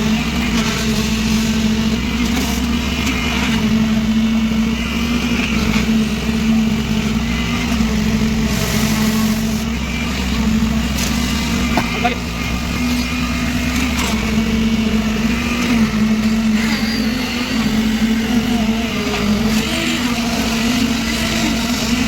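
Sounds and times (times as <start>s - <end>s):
concrete vibrator motor humming: 0.0s - 22.0s.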